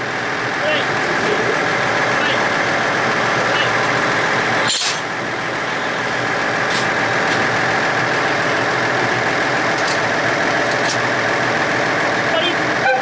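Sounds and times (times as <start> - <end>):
train mechanical running noise: 0.0 - 13.0.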